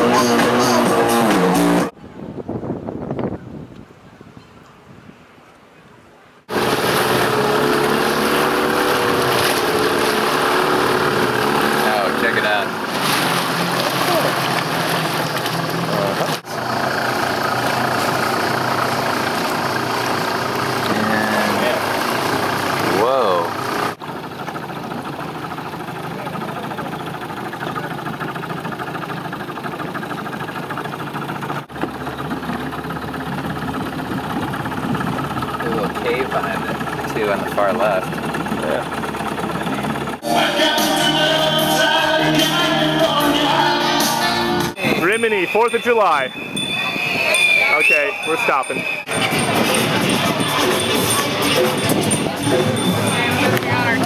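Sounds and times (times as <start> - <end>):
boat engine running: 0.0 - 2.2, 6.5 - 54.0.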